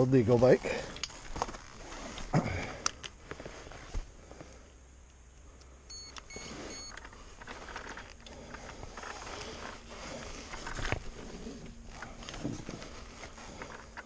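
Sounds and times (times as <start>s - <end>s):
short electronic beeps: 5.9s - 7.0s.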